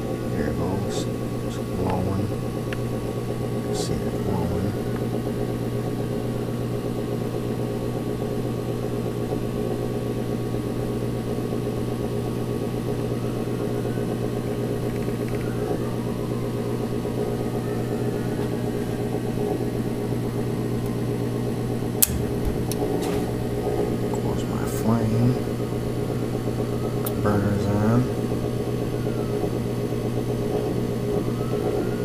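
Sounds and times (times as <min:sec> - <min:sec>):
furnace motor humming: 0:00.0 - 0:32.0
sharp click: 0:22.0 - 0:23.2.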